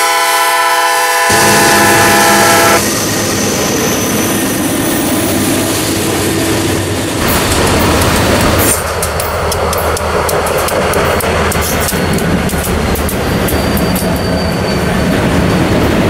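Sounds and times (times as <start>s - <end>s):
locomotive horn: 0.0s - 2.9s
locomotive engines rumbling: 0.0s - 16.0s
wheels clattering over rail joints: 6.1s - 16.0s.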